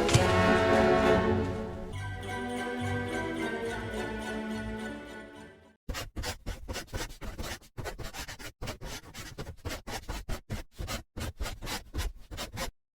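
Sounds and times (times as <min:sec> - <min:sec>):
bamboo being split and scraped: 0:00.0 - 0:00.8.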